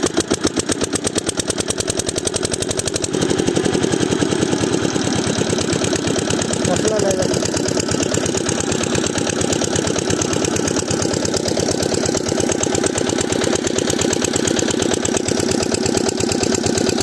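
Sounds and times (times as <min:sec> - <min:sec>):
diesel water pump running: 0:00.0 - 0:17.0.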